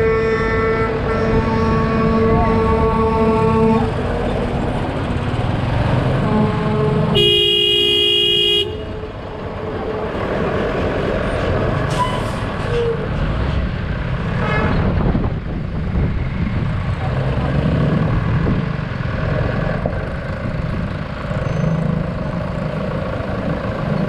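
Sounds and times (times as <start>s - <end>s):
vehicle horn blast: 0.0s - 3.9s, 6.2s - 9.1s
road traffic: 0.0s - 24.0s
faint honks: 6.2s - 8.9s.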